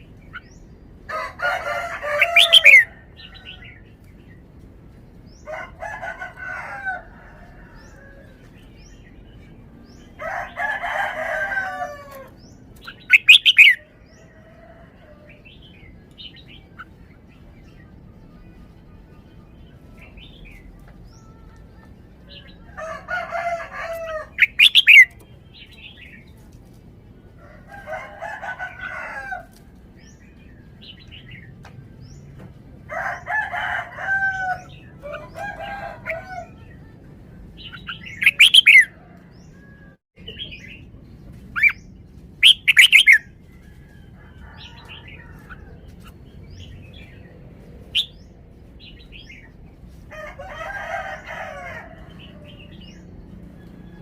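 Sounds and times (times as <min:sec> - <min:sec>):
rooster crowing: 0:01.1 - 0:03.8, 0:05.4 - 0:08.5, 0:10.2 - 0:12.4, 0:22.5 - 0:25.1, 0:27.4 - 0:29.6, 0:32.9 - 0:36.7, 0:42.7 - 0:45.8, 0:50.1 - 0:53.0
bird whistled calls: 0:13.1 - 0:13.8.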